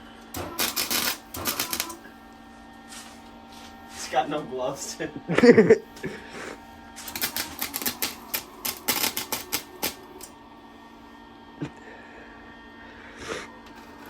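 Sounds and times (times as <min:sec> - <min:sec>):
arc welder crackling: 0:00.0 - 0:02.2, 0:02.8 - 0:10.4, 0:13.6 - 0:14.0.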